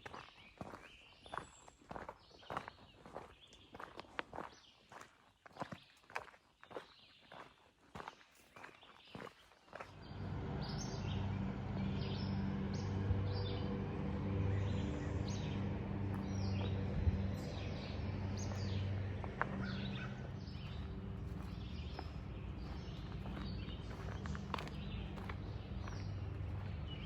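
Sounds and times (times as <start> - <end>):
songbirds chirping: 0.0 - 27.0
low steady hum: 10.0 - 27.0.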